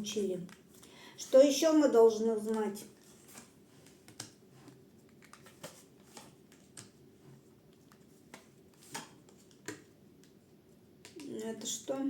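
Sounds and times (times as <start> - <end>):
cards shuffling: 2.4 - 7.0.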